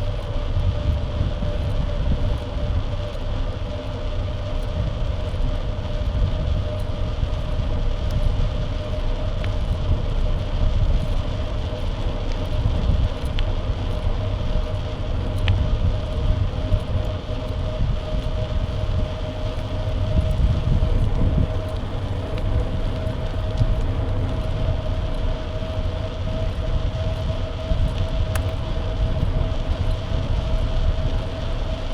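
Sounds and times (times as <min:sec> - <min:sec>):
bike hum: 0:00.0 - 0:31.9
wind buffeting microphone: 0:00.0 - 0:31.9
faint ticks: 0:06.0 - 0:17.6, 0:18.2 - 0:31.8.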